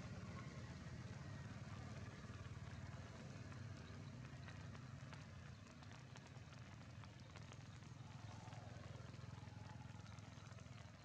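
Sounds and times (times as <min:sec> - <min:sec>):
rain drops ticking: 0:03.6 - 0:09.2.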